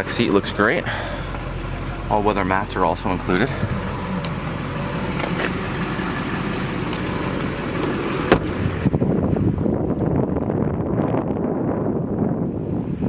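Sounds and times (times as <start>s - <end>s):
diesel engine idling: 0.0s - 10.6s
wind rumbling on microphone: 3.0s - 13.0s.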